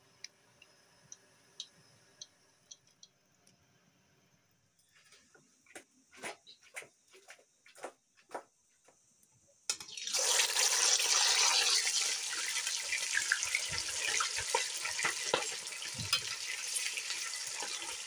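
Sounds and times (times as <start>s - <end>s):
oil crackling and popping: 9.7s - 18.0s
chicken sizzling in hot oil: 9.8s - 18.0s.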